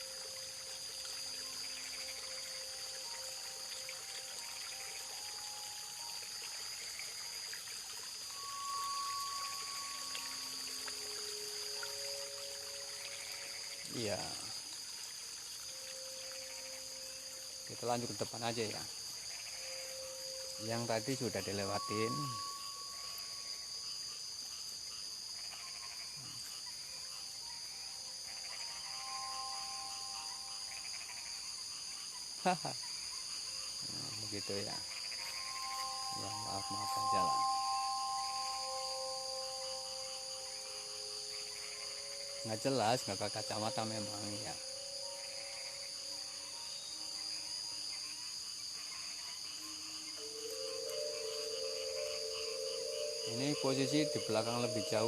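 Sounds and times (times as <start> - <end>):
faint thin tones: 0.0 - 14.8, 15.6 - 23.7, 33.8 - 47.4, 49.1 - 55.0
fast pulsed insect trills: 0.0 - 55.0
night insects chorus: 0.0 - 55.0.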